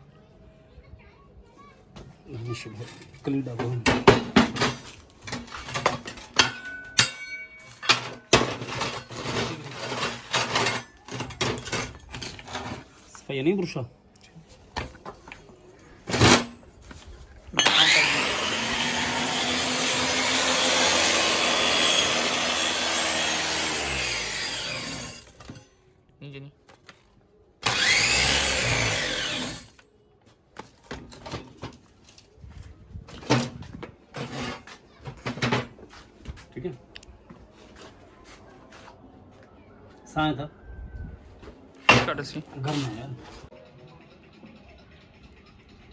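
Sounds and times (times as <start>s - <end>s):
metallic clanks on steel: 2.9s - 12.8s
tool scraping steel plate: 3.0s - 13.0s, 17.6s - 25.7s, 34.1s - 35.5s.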